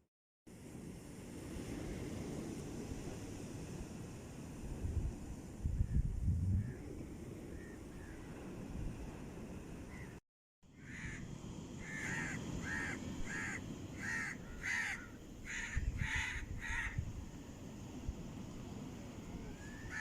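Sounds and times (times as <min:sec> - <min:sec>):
crow cawing: 0:10.8 - 0:17.0.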